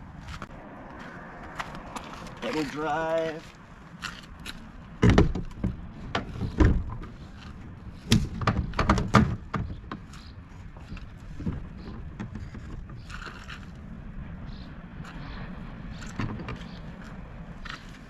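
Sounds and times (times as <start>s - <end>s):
hollow knocks on kayak hull: 5.0s - 7.0s, 8.1s - 10.1s.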